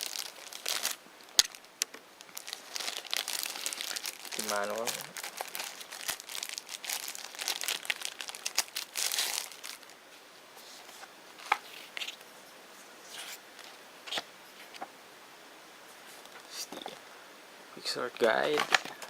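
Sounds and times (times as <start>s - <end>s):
packaging and paper crinkling: 0.0s - 10.0s, 18.3s - 19.0s.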